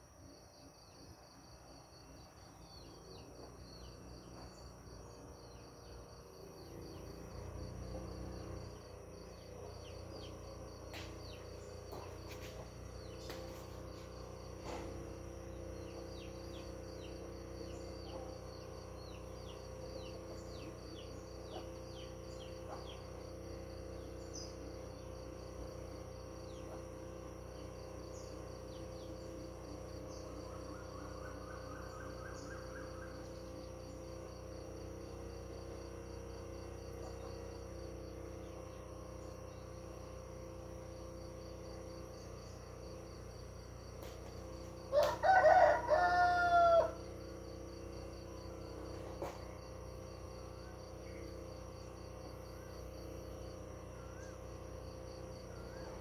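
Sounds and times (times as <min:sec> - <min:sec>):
pulsing insect trill: 0:00.0 - 0:56.0
faint bird chirps: 0:00.2 - 0:56.0
rooster crowing: 0:44.5 - 0:48.4.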